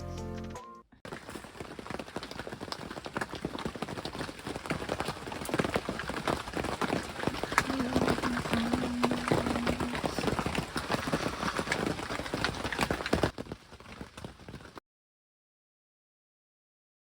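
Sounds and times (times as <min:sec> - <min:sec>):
background music: 0:00.0 - 0:01.0
rain drops tapping: 0:01.0 - 0:14.8.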